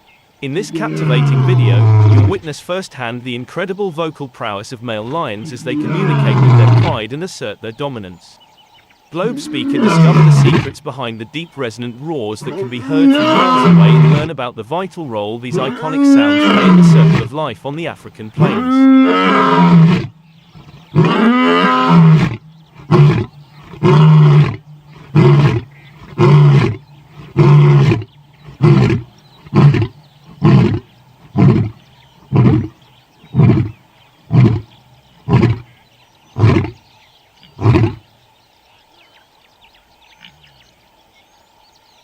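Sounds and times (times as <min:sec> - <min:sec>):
lion roaring and grunting: 0:00.6 - 0:02.4, 0:05.4 - 0:07.0, 0:09.2 - 0:10.8, 0:12.4 - 0:14.3, 0:15.5 - 0:17.3, 0:18.4 - 0:35.7
faint bird chirps: 0:03.5 - 0:09.9, 0:20.0 - 0:42.0.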